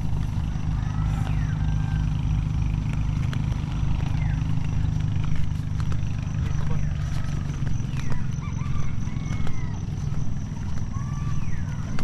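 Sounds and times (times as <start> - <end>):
engine droning: 0.0 - 12.0
faint high chirps: 6.5 - 12.0.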